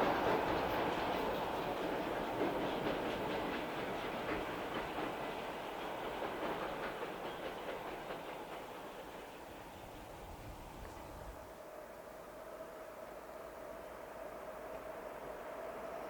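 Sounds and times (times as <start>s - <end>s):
train wheels clicking over rail joints: 0.0s - 11.3s.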